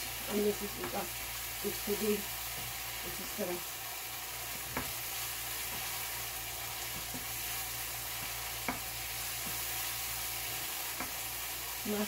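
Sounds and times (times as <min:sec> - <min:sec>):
food sizzling in a pan: 0:00.0 - 0:12.0
spatula stirring: 0:04.4 - 0:11.6
spatula knocking on pan: 0:04.6 - 0:05.0, 0:06.9 - 0:07.3, 0:08.1 - 0:09.7.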